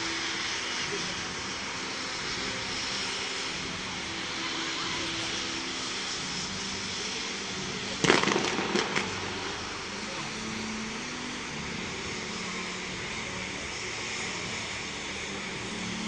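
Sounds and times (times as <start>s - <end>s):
steady rushing noise: 0.0s - 16.0s
firework bang: 8.0s - 9.7s
sharp firework cracks: 8.0s - 10.0s.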